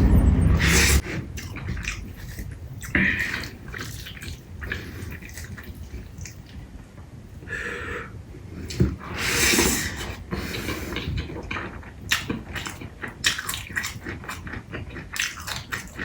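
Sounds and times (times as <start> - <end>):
loud low rumble: 0.0 - 1.0
wet chewing with mouth clicks: 1.0 - 6.7, 8.6 - 16.0.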